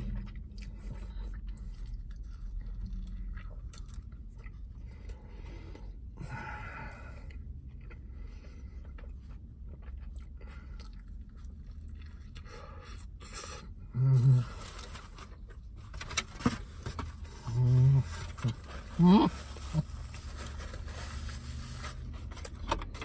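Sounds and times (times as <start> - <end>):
man chewing: 0.0 - 6.4, 7.1 - 15.6
low steady rumble: 0.0 - 23.0
man humming mmm: 13.9 - 14.5.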